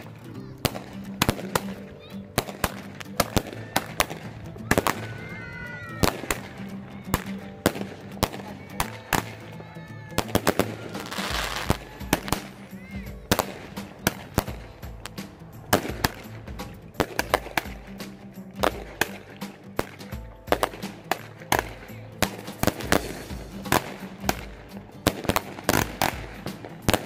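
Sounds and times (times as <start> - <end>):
firework pops and cracks: 0.0 - 27.0
firework whistles: 10.2 - 16.4.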